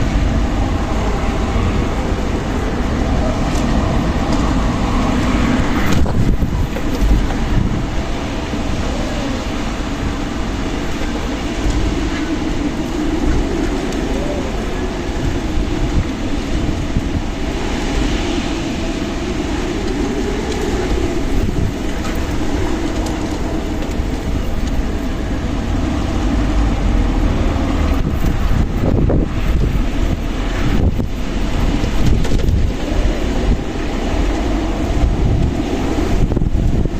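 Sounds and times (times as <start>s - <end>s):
hollow howling wind tone: 0.0s - 36.9s
strong wind rumbling: 0.0s - 36.9s.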